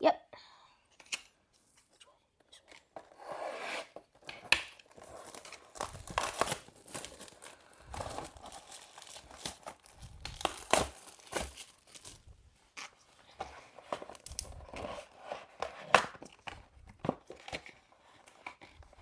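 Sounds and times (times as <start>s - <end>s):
plastic wrapping crinkling and tearing: 4.5s - 12.4s, 14.0s - 14.6s.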